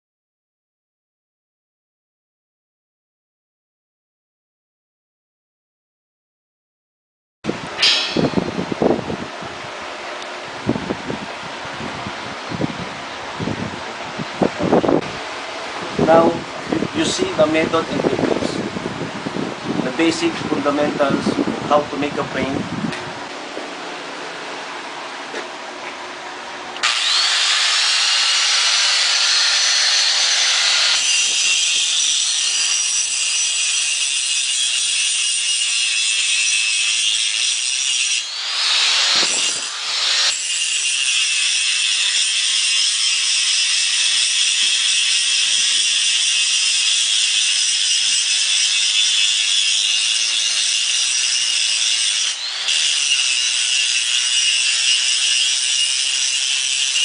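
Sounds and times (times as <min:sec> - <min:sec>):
angle grinder grinding steel: 0:07.8 - 0:08.9, 0:26.8 - 0:57.0.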